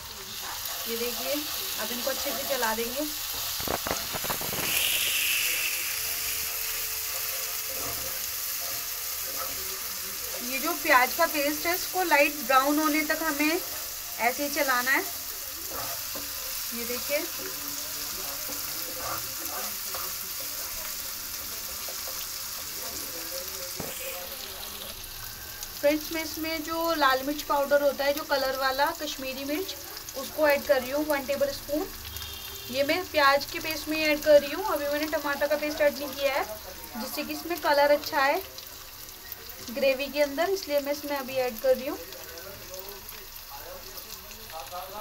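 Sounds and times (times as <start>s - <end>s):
paste sizzling in hot oil: 0.0s - 45.0s
wooden spatula stirring: 7.2s - 9.9s, 15.6s - 16.6s, 17.2s - 20.7s
wooden spatula scraping a pan: 15.6s - 16.6s, 18.2s - 20.6s.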